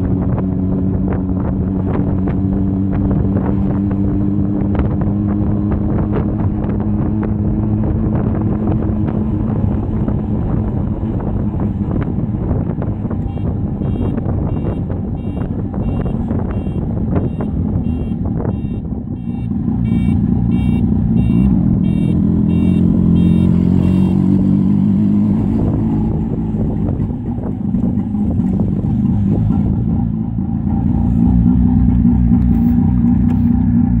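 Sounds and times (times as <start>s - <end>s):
two-stroke engine running: 13.2s - 24.7s.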